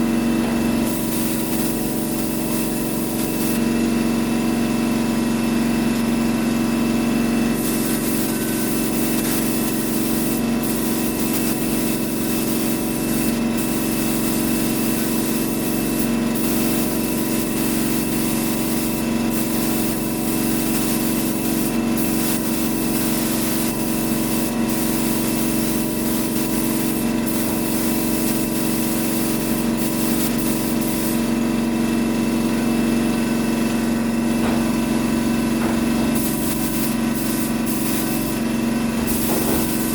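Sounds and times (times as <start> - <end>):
air compressor humming: 0.0 - 39.9
paint spray gun hissing: 0.8 - 3.7, 7.5 - 31.4, 35.7 - 39.9.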